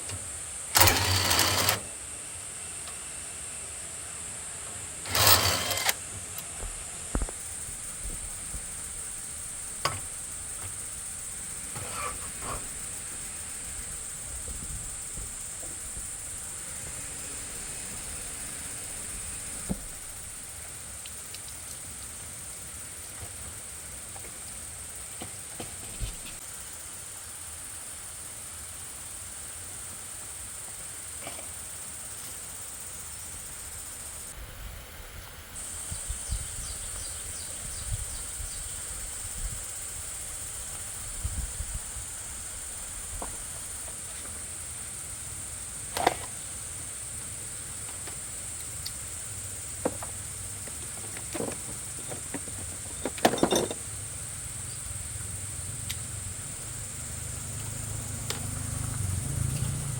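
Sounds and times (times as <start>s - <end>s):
steady high hiss: 0.0s - 59.9s
sharp knocks and clicks: 9.8s - 10.8s.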